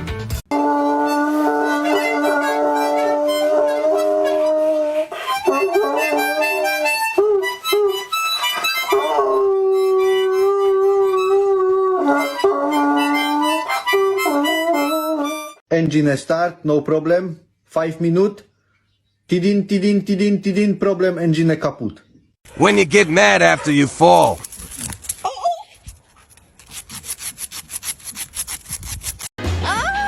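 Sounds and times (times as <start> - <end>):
dog howling: 0.5 - 8.0, 8.8 - 15.5
harmonica playing held notes: 0.5 - 15.6.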